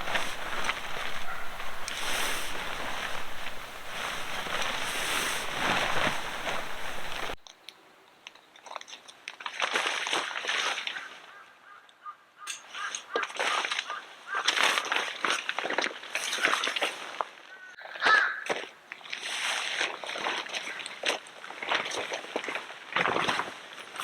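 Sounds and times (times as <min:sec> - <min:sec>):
loud continuous crunching: 0:00.0 - 0:07.4
small clicks and crackles: 0:00.0 - 0:09.5.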